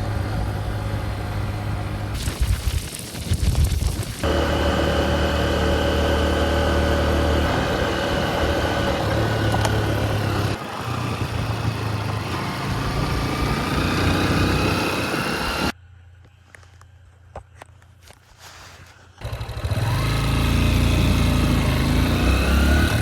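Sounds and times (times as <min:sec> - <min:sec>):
motorcycle engine running: 0:00.0 - 0:02.2, 0:04.2 - 0:15.8, 0:19.2 - 0:23.0.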